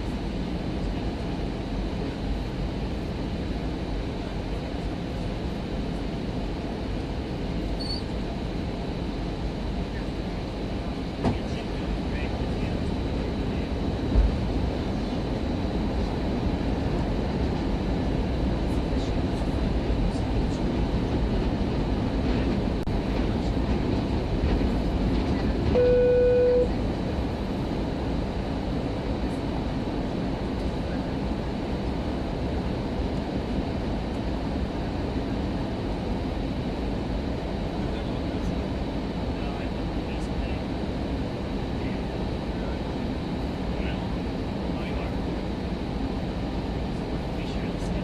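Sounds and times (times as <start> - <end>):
airliner cabin rumble: 0.0 - 48.0.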